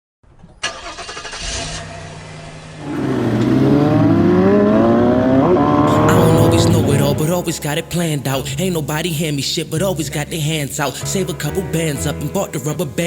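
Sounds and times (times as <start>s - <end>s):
car engine accelerating: 0.8s - 8.9s.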